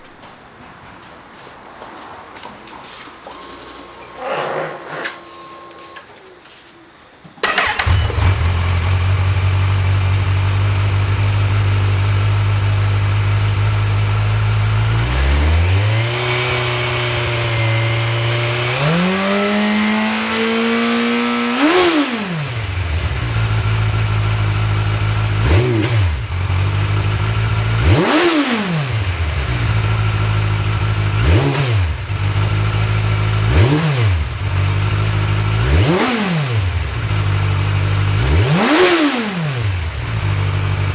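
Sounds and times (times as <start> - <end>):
exhaust throttle blips: 7.4 - 40.9
motorcycle engine starting and revving: 7.4 - 40.9.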